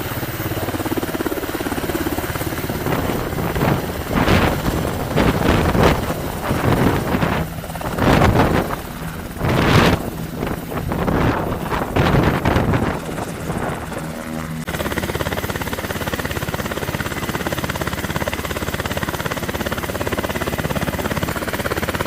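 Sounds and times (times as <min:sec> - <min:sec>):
helicopter running: 0:00.0 - 0:22.0
wind buffeting microphone: 0:00.5 - 0:14.7.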